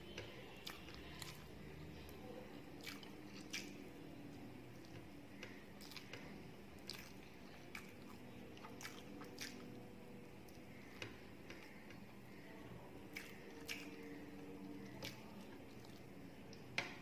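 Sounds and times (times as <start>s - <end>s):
faint steady hum: 0.0s - 17.0s
person chewing: 0.6s - 2.2s, 2.8s - 3.8s, 4.7s - 9.8s, 13.1s - 16.6s.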